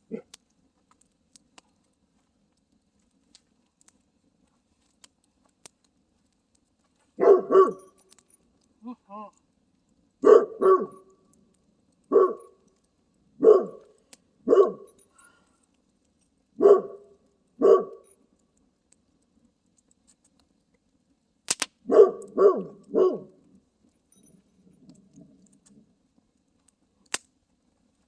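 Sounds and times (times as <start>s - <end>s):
dog barking: 0.1s - 0.3s, 7.2s - 8.0s, 10.2s - 11.1s, 12.1s - 12.5s, 13.4s - 14.9s, 16.6s - 18.0s, 21.9s - 23.4s.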